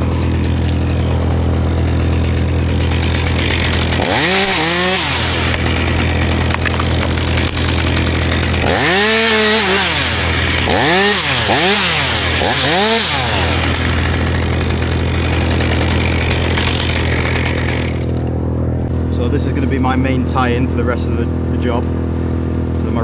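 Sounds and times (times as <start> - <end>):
chainsaw revving: 0.0 - 18.9.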